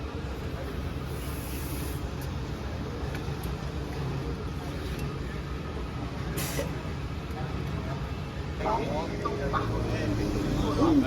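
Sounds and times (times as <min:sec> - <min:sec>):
brief hiss: 0:01.1 - 0:02.1, 0:06.4 - 0:06.8.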